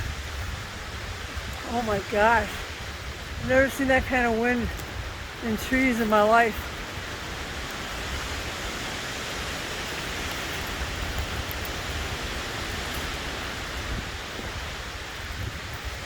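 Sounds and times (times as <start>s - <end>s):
wind rumble on microphone: 0.0s - 16.0s
wind rushing through trees: 0.0s - 16.0s.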